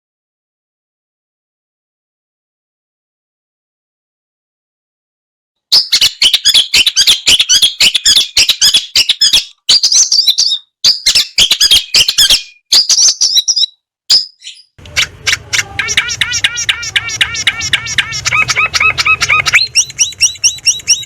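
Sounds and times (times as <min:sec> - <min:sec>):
bird singing harsh chirps: 0:05.7 - 0:21.0.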